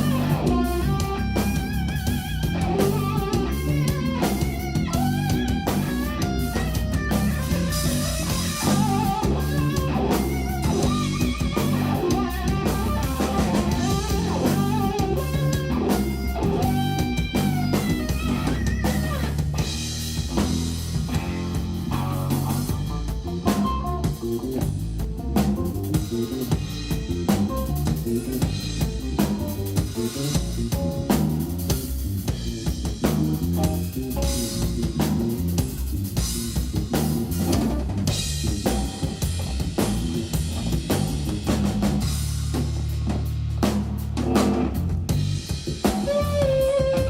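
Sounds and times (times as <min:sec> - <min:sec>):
bass guitar: 0:00.0 - 0:47.0
drum kit: 0:00.0 - 0:47.0
electric guitar melody: 0:00.0 - 0:47.0.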